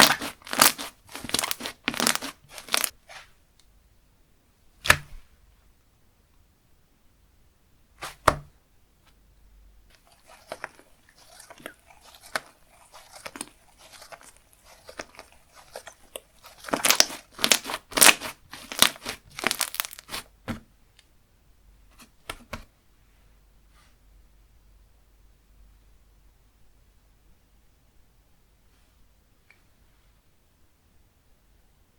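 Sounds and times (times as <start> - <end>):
slime crackling and tearing: 0.0 - 3.0, 10.0 - 20.3.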